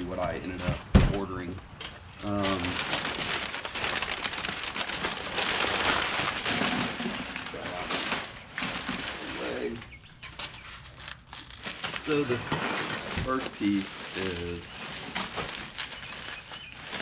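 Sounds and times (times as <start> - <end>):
packing material rustling: 2.2 - 17.0.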